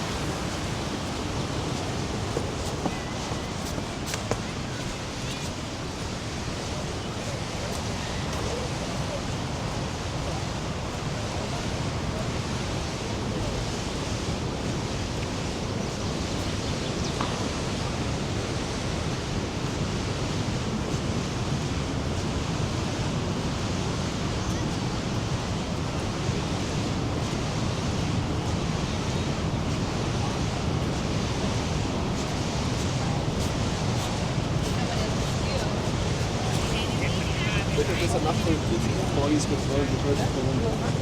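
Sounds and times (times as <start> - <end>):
waterfall rushing: 0.0 - 15.1, 24.2 - 41.0.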